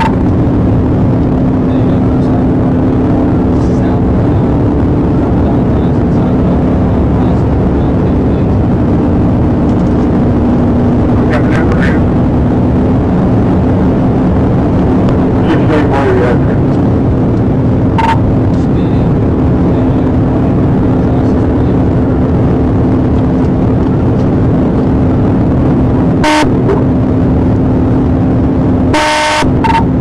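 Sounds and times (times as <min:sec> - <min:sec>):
car road and engine drone: 0:00.0 - 0:30.0
low hum: 0:00.0 - 0:30.0
short sharp blips: 0:18.0 - 0:18.2, 0:29.0 - 0:29.9.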